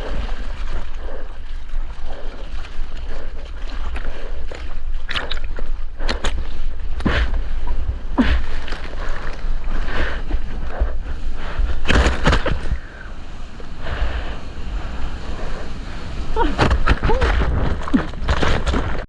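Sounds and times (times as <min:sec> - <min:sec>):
water splashes: 0:00.0 - 0:19.0
wind and sea water rushing: 0:00.0 - 0:19.0.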